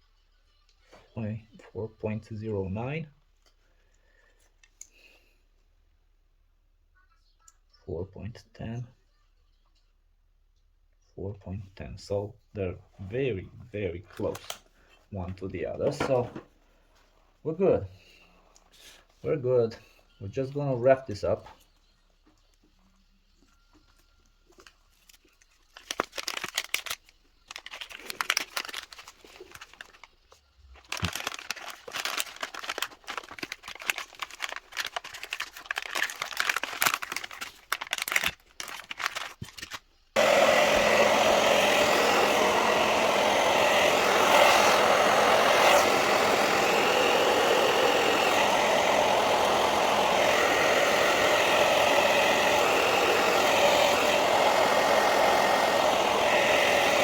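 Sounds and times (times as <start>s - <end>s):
crackling rustling handling noises: 23.4s - 40.0s
heat gun blowing: 40.2s - 57.0s.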